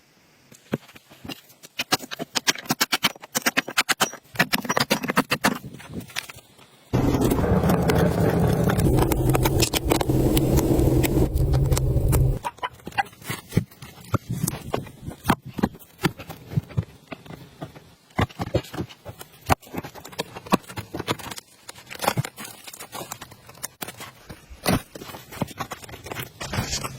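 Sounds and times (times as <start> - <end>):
motor running: 7.0 - 12.4.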